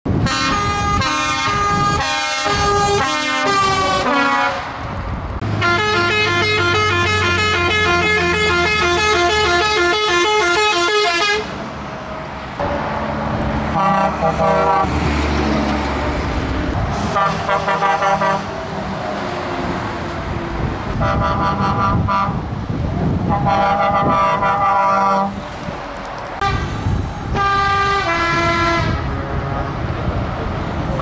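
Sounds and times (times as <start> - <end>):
truck musical horn playing tunes: 0.1 - 4.8, 5.4 - 11.6, 13.7 - 15.1, 17.0 - 18.6, 20.9 - 22.4, 23.3 - 25.4, 26.4 - 29.2.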